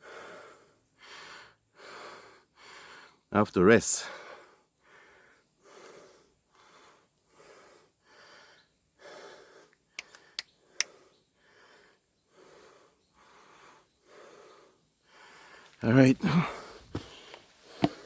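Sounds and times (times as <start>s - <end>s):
man panting: 0.0s - 3.1s, 4.0s - 18.0s
sharp clicks: 10.0s - 11.0s.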